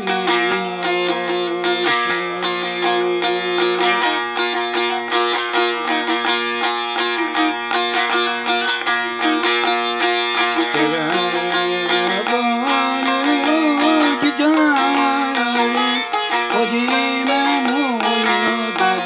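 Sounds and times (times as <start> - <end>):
lower wavering melody: 0.0 - 19.0
plucked string instrument: 0.0 - 19.0.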